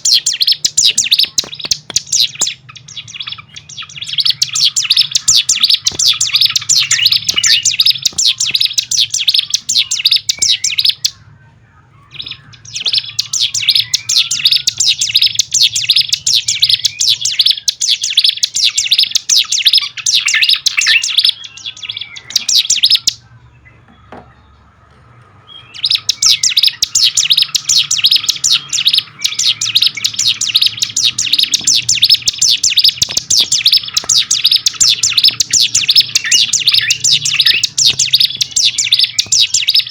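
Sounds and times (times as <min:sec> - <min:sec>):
bird chattering song: 0:00.0 - 0:39.9
faint low hum: 0:00.0 - 0:39.9.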